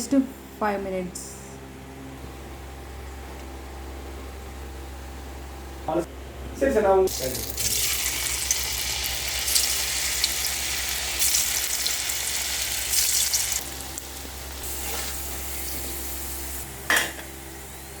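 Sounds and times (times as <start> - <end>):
potatoes sizzling in hot oil: 7.1 - 16.6.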